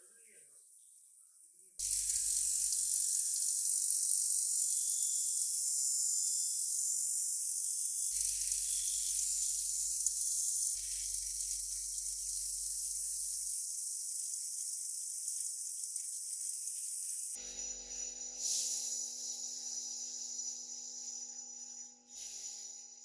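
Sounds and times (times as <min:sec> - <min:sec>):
music: 0:08.1 - 0:13.8, 0:17.3 - 0:23.0
high-pitched hiss: 0:17.4 - 0:23.0.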